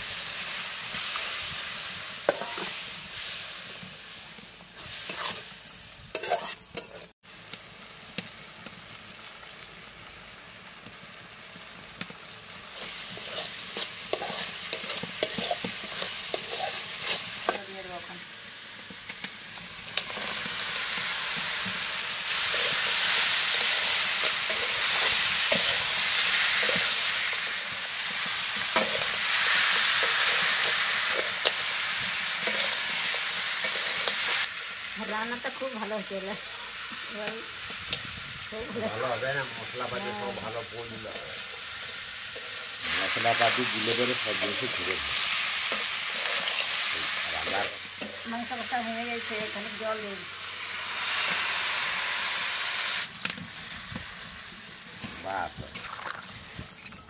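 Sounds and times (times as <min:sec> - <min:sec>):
meat sizzling in a pan: 0:00.0 - 0:57.0
metal spatula scraping pan: 0:02.2 - 0:02.8, 0:04.8 - 0:05.5, 0:06.1 - 0:07.1, 0:12.8 - 0:17.6.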